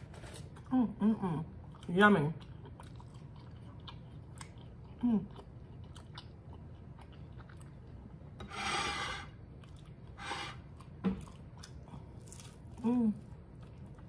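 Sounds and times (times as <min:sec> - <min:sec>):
person chewing: 0:01.6 - 0:08.1, 0:09.4 - 0:14.0.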